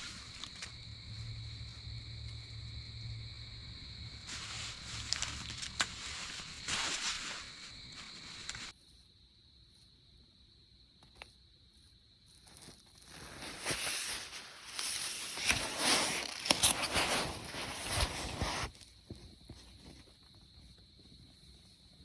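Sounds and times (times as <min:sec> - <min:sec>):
close rustling and scuffing: 0:04.2 - 0:08.7, 0:12.5 - 0:21.3.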